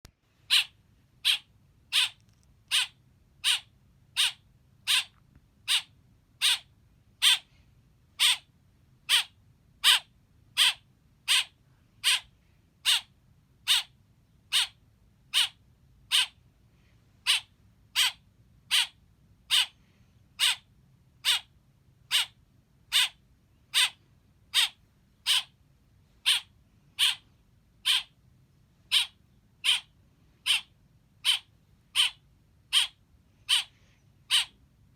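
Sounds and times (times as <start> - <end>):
baby bird chirping: 0.5 - 7.5, 8.2 - 16.4, 17.2 - 19.8, 20.4 - 21.5, 22.1 - 25.6, 26.2 - 28.2, 28.9 - 34.6.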